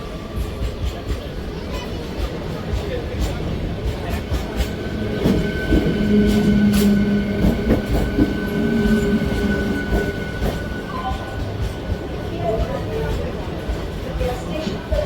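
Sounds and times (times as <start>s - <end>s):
train rumbling on rails: 0.0s - 15.0s
held tone: 5.9s - 12.0s.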